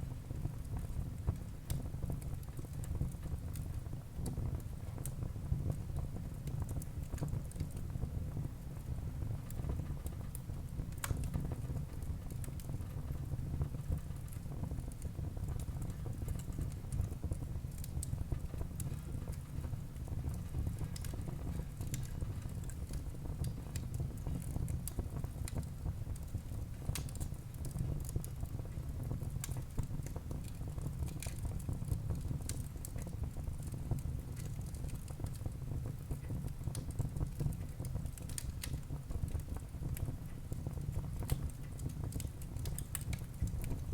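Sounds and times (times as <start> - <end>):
flames rumbling: 0.1 - 43.9
logs crackling and popping: 20.2 - 21.2, 21.8 - 26.3, 26.9 - 43.9.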